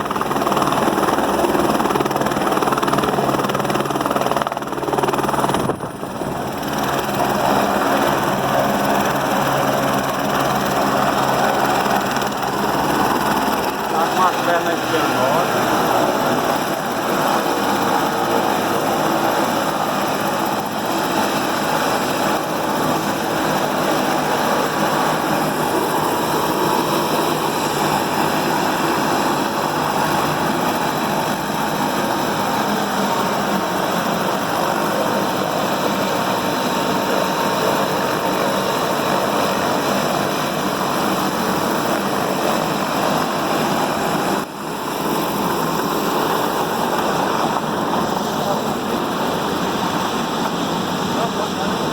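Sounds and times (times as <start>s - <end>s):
helicopter rotor and turbine: 0.0s - 51.9s.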